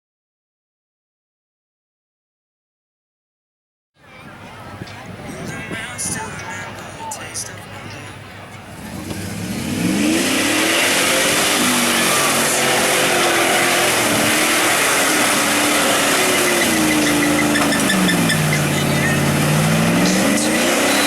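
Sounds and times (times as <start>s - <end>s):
truck engine revving hard: 8.6s - 21.0s.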